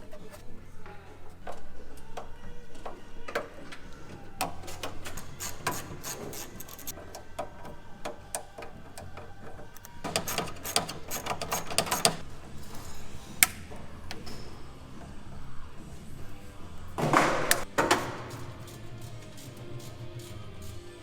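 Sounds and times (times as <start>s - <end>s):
rapid irregular clicks and knocks: 4.4s - 12.2s.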